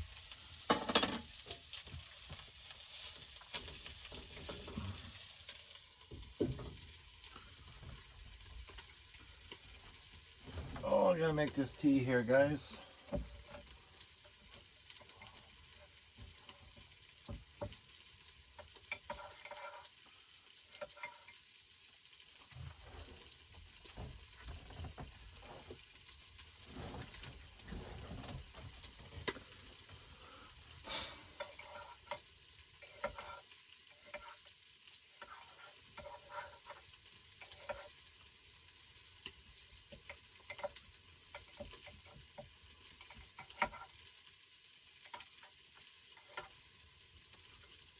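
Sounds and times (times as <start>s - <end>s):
food sizzling in a frying pan: 0.0s - 47.9s
kitchen utensils clicking and knocking: 0.7s - 1.3s.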